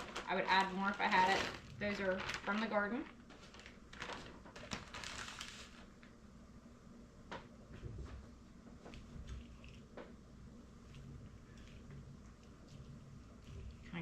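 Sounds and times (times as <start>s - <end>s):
vegetables rustling into pot: 0.0s - 6.0s.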